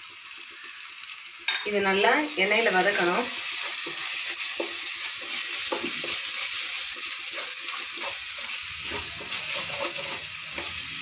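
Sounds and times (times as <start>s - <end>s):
food sizzling in oil: 0.0s - 11.0s
wooden spatula scraping pan: 3.6s - 11.0s.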